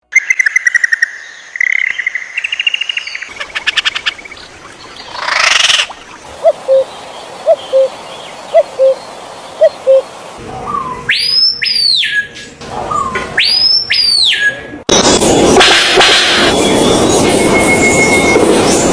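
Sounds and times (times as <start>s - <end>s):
loud sweeping whistled bird calls: 10.7s - 14.6s.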